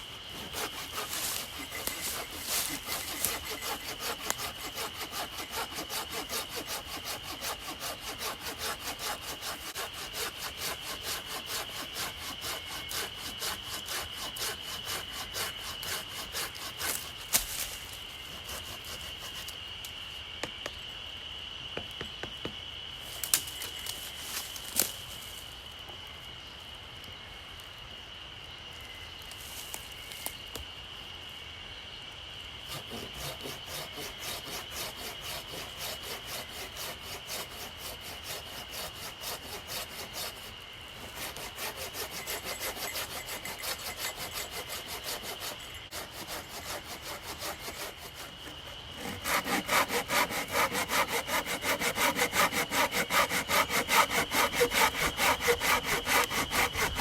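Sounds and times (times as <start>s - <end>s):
hand saw cutting wood: 0.3s - 17.7s, 18.4s - 19.5s, 32.7s - 57.0s.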